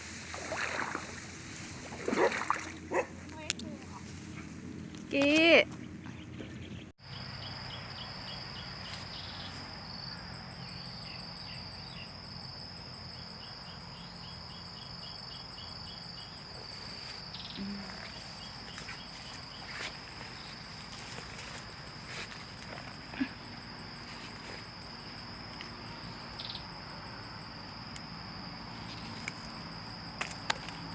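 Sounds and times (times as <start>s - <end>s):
cricket chirps: 0.0s - 5.6s, 7.0s - 30.9s
insects high-pitched drone: 7.0s - 30.9s.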